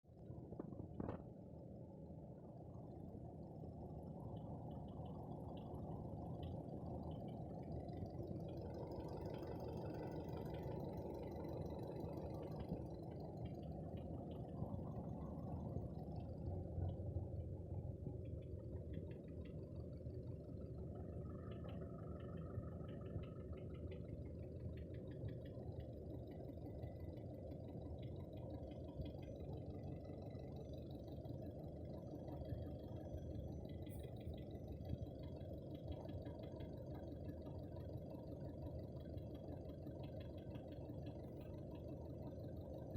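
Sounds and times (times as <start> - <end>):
engine running with a knock: 0.5 - 1.3.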